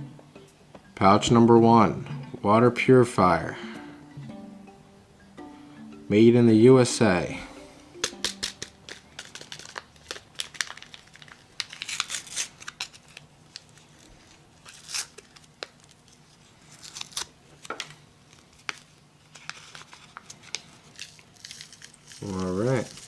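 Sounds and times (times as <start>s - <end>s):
packet crinkling and tearing: 8.0s - 23.0s.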